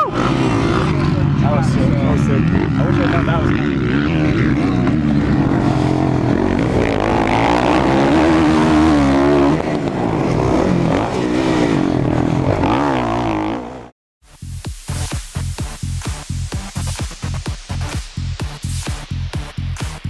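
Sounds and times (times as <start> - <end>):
dirt bike engines revving: 0.0 - 13.9
electronic dance music: 14.3 - 20.0.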